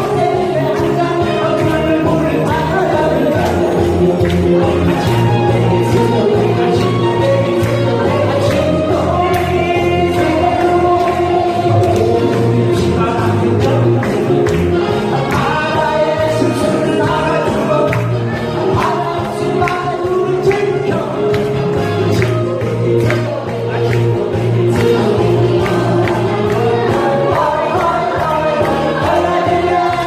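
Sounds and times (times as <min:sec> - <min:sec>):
band accompaniment with steady beat: 0:00.0 - 0:30.0
person singing: 0:00.0 - 0:30.0.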